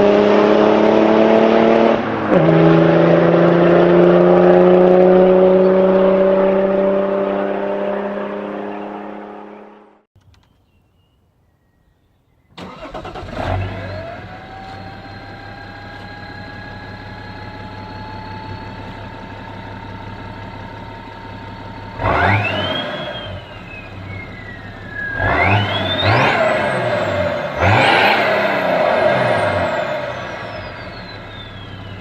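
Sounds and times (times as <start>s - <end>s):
engine revving with turbo whistle: 0.0s - 10.1s, 12.6s - 32.0s
diesel engine starting: 12.5s - 32.0s
engine idling with whine: 12.6s - 32.0s.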